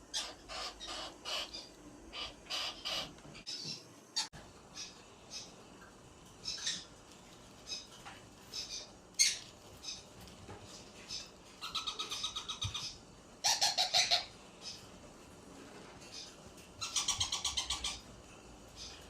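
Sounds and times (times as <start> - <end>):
parrot chirping: 0.0 - 5.6, 7.6 - 10.1, 11.0 - 14.8, 16.1 - 18.1.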